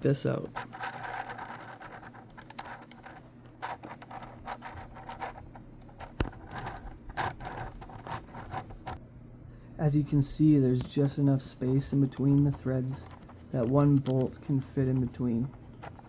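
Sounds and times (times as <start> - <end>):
plastic parts scraping: 0.3 - 9.0, 11.8 - 16.0.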